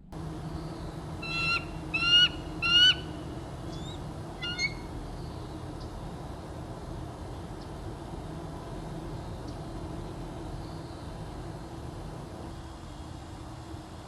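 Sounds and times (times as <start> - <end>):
steady low hum: 0.0 - 14.0
bird honking: 1.2 - 3.2, 4.4 - 4.9.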